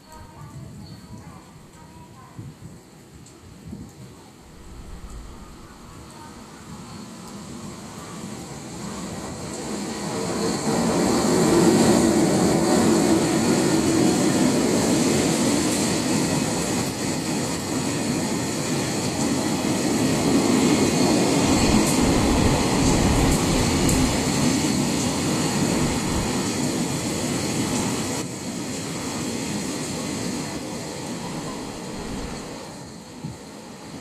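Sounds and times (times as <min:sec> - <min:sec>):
freight train wagons rumbling: 0:04.4 - 0:07.0, 0:20.5 - 0:26.6, 0:31.1 - 0:32.7.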